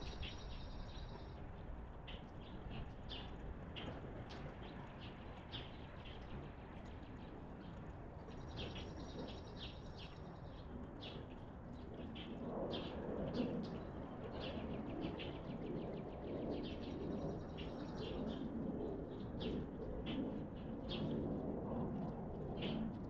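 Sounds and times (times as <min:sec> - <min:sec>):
small birds chirping: 0:00.0 - 0:01.4
outdoor background noise: 0:00.0 - 0:23.0.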